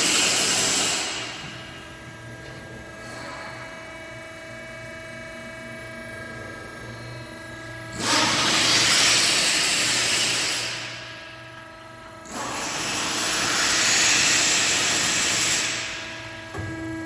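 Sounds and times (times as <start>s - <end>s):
hydraulic machine humming: 0.0s - 17.0s.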